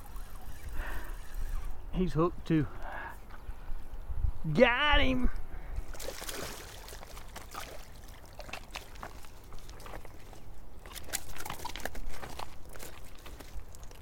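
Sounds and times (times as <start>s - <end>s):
water splashing: 5.9s - 11.8s.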